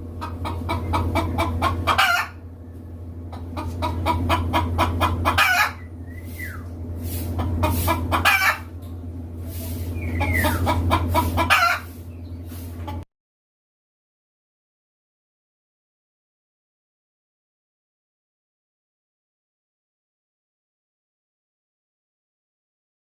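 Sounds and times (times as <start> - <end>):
chicken cackling: 0.0 - 13.0.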